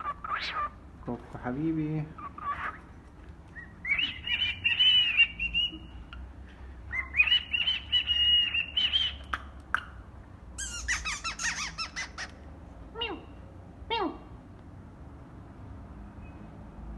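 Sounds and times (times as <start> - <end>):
cockatiel whistling and chirping: 3.6 - 6.0, 6.9 - 9.4, 10.6 - 12.4.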